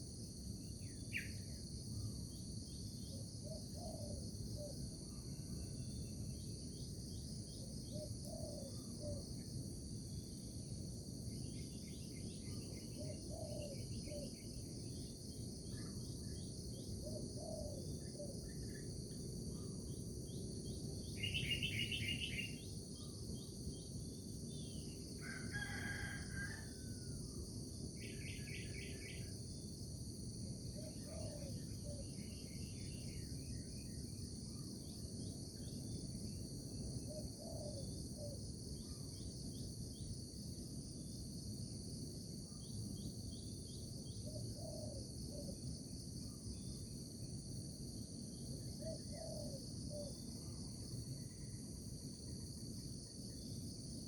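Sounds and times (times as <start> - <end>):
insects chirping: 0.0 - 54.0
rooster crowing: 25.2 - 27.2.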